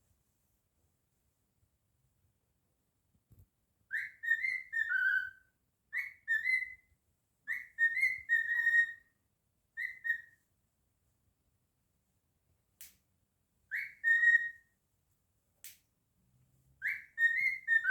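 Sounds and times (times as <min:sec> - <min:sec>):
cockatiel whistling a tune: 0:03.9 - 0:06.9, 0:07.5 - 0:09.1, 0:09.8 - 0:10.4, 0:13.7 - 0:14.7, 0:16.8 - 0:17.9.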